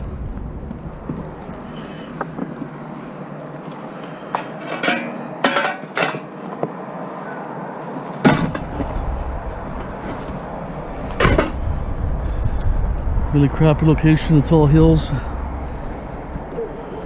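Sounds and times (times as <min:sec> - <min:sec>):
low rumble: 0:00.0 - 0:02.7, 0:08.6 - 0:17.0
junk knocking and clattering: 0:11.0 - 0:11.7.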